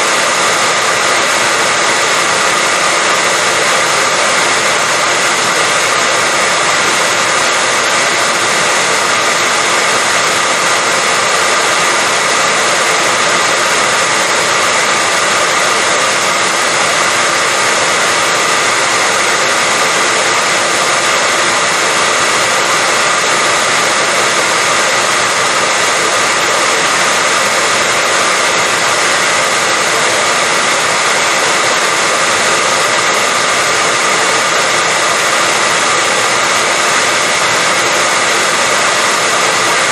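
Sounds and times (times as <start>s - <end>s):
hair dryer blowing air: 0.0s - 39.9s.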